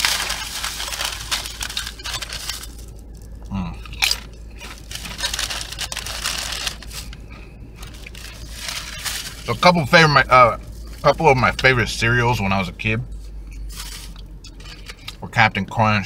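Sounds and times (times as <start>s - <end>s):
crunching tortilla chips: 0.0s - 10.0s
person humming: 3.5s - 3.8s.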